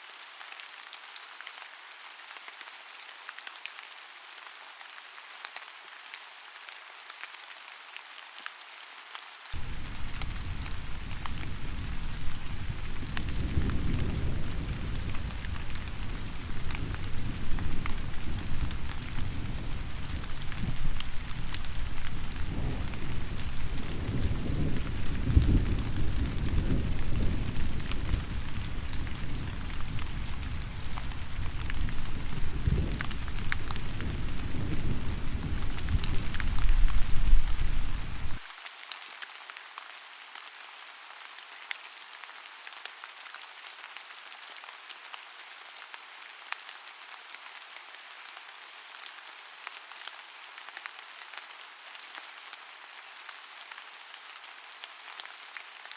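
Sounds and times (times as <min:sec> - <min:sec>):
steady rain: 0:00.0 - 0:55.9
rain drop ticks: 0:09.6 - 0:38.4.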